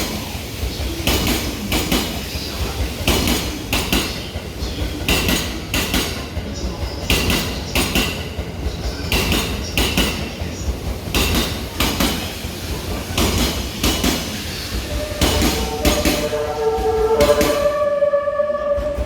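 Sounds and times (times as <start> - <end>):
train wheels clacking over rail joints: 0.0 - 19.0
train music horn melody: 14.7 - 19.0.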